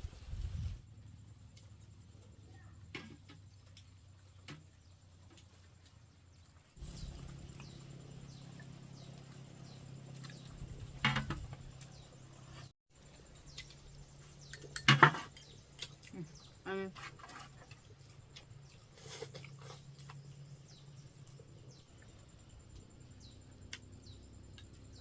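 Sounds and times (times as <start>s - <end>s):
birds chirping: 6.3s - 25.0s.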